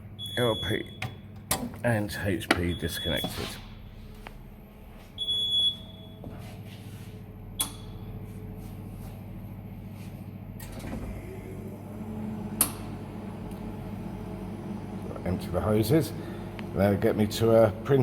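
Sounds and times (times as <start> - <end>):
pump humming: 10.6 - 18.0.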